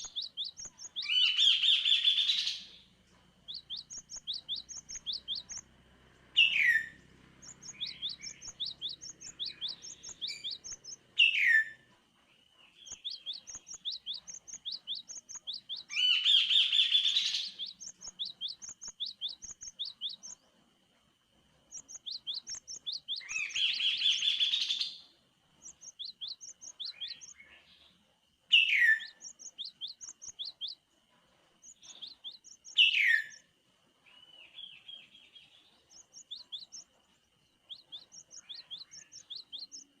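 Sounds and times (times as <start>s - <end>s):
bird harsh chattering: 0.0s - 2.7s, 3.5s - 5.7s, 6.4s - 11.7s, 12.9s - 20.4s
bird downward-sweeping calls: 0.0s - 2.8s, 3.4s - 11.8s, 12.7s - 20.4s, 21.7s - 25.0s, 28.5s - 30.8s, 31.7s - 33.5s, 37.6s - 40.0s
bird high chirps: 0.0s - 20.6s, 21.5s - 30.9s, 31.5s - 40.0s.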